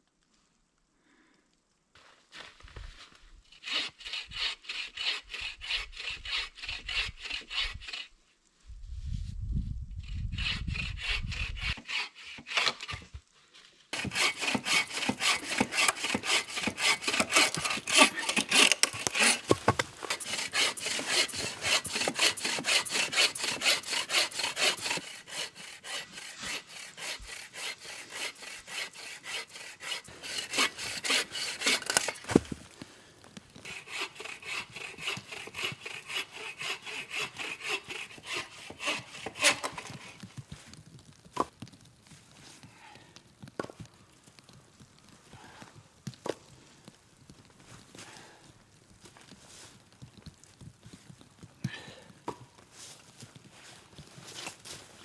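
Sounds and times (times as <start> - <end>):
hand saw cutting wood: 3.5 - 8.1, 10.3 - 13.1, 14.0 - 32.8, 33.6 - 40.3, 53.7 - 55.0.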